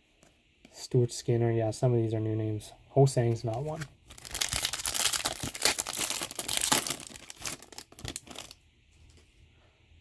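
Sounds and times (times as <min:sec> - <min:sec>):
wrapper tearing and crinkling: 0:04.1 - 0:08.6.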